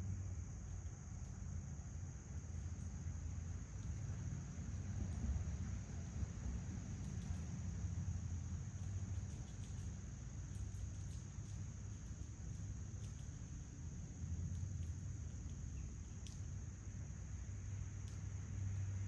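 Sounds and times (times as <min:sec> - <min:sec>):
high insect chorus: 0:00.0 - 0:19.0
faint ticks: 0:02.5 - 0:05.9, 0:06.7 - 0:19.0.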